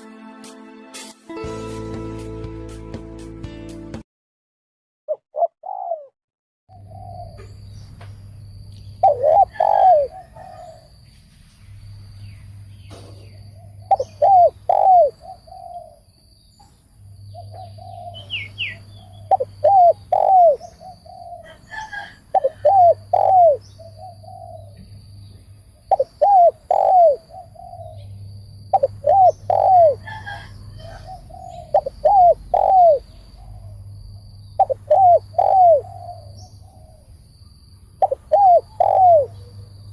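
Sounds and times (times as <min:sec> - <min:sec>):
dove cooing: 0:05.1 - 0:06.1, 0:06.7 - 0:07.6, 0:09.0 - 0:10.9, 0:13.6 - 0:16.0, 0:17.4 - 0:24.8, 0:25.9 - 0:33.9, 0:34.6 - 0:37.1, 0:38.0 - 0:39.6.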